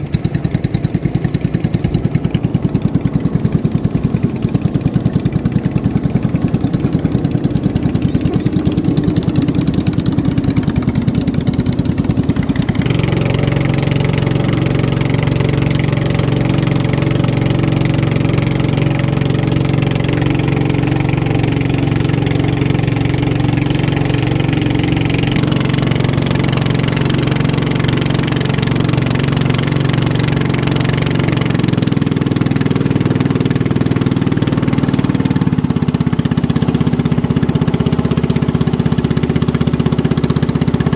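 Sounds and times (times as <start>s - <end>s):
racing boat engine: 0.0s - 40.9s.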